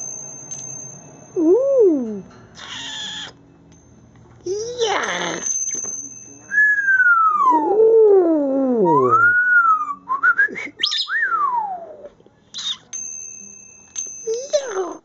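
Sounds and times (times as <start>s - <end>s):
parrot whistling: 2.6s - 3.4s, 8.8s - 12.0s, 12.6s - 12.9s.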